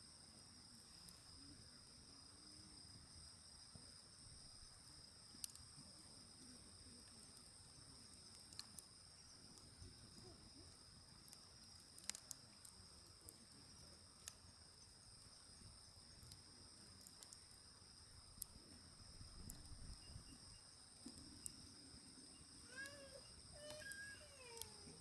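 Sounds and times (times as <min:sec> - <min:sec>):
insects chirring: 0:00.0 - 0:25.0
wood fire crackling and popping: 0:04.7 - 0:05.8, 0:07.0 - 0:20.0.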